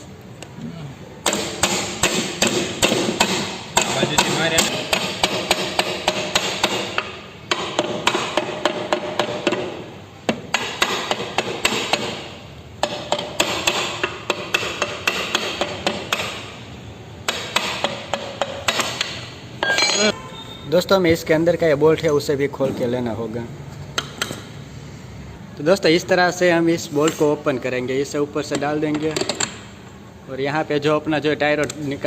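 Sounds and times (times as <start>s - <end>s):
hammer striking metal: 1.2s - 12.2s, 17.3s - 20.6s.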